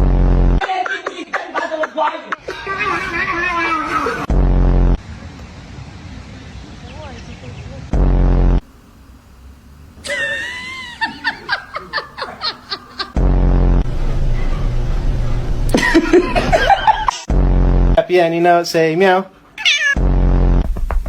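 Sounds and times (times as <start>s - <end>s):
person laughing: 0.6s - 4.3s, 10.0s - 13.2s, 15.7s - 17.3s
loud low rumbles: 4.3s - 6.7s, 13.2s - 18.0s.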